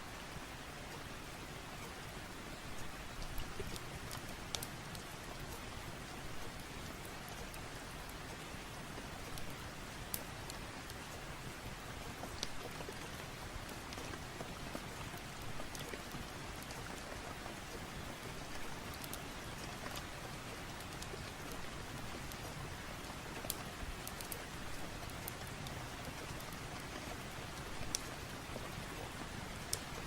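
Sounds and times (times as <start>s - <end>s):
rain falling: 0.0s - 30.0s.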